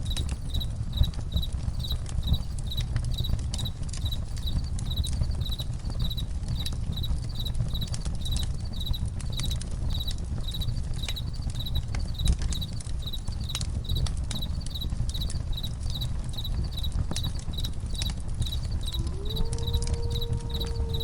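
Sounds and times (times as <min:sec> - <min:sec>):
campfire crackling and popping: 0:00.0 - 0:21.0
cricket chirping: 0:00.0 - 0:21.0
low rumble: 0:18.5 - 0:21.0.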